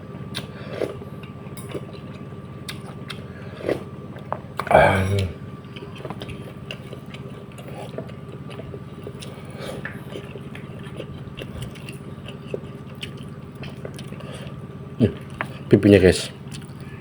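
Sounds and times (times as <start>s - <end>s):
low electrical hum: 0.0s - 17.0s
wet chewing and smacking: 0.3s - 4.7s, 5.6s - 15.7s, 16.4s - 17.0s.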